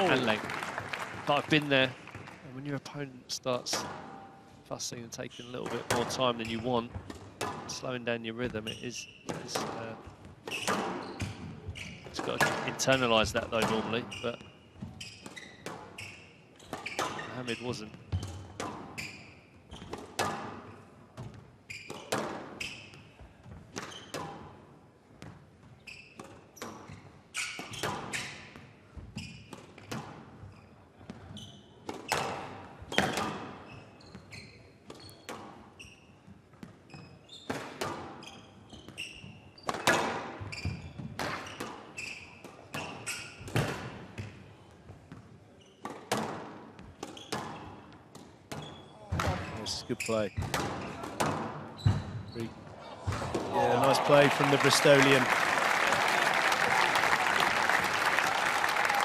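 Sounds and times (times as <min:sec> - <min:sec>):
squash ball hitting rackets and walls: 0:05.6 - 0:07.8, 0:09.3 - 0:14.1, 0:18.1 - 0:24.6, 0:26.1 - 0:30.4, 0:31.0 - 0:33.7, 0:37.4 - 0:44.4, 0:45.1 - 0:49.5, 0:50.4 - 0:52.0.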